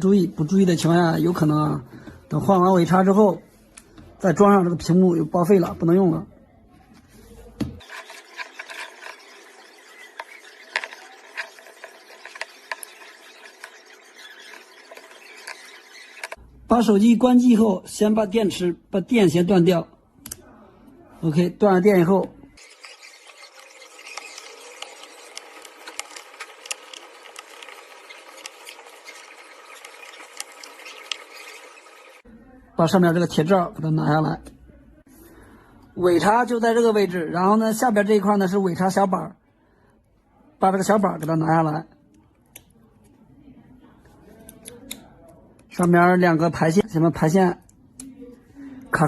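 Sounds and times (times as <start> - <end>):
tools scraping phone screen: 7.4 - 16.4, 22.6 - 32.2
small clicks and snaps: 42.2 - 42.8.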